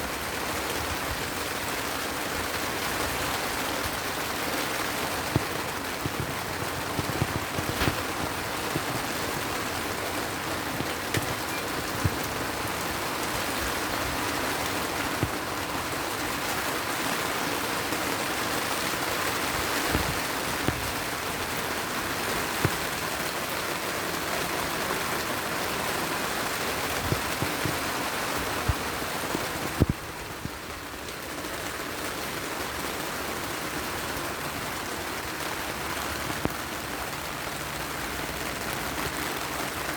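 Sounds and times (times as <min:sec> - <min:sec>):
heavy rain falling: 0:00.0 - 0:39.9
sharp pops and clicks: 0:05.3 - 0:09.1, 0:10.7 - 0:12.4, 0:19.9 - 0:21.0.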